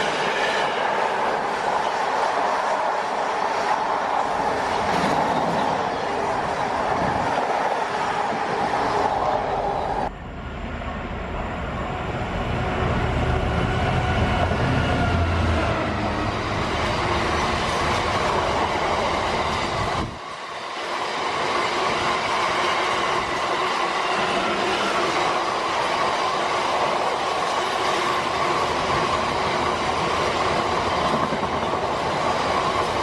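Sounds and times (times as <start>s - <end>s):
deep train rumble: 0.0s - 20.3s
freight train passing: 0.0s - 33.0s.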